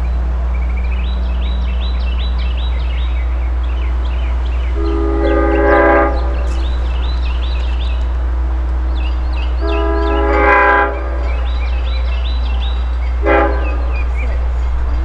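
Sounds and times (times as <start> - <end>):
locomotive air horn blasts: 4.8 - 8.6, 9.5 - 11.5, 13.2 - 14.1.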